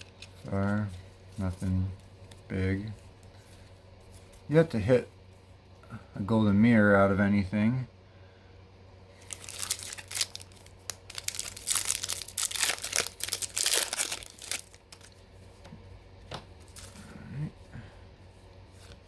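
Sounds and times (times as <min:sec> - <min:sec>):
foil wrapper crinkling and tearing: 0:00.0 - 0:00.5, 0:09.2 - 0:15.2.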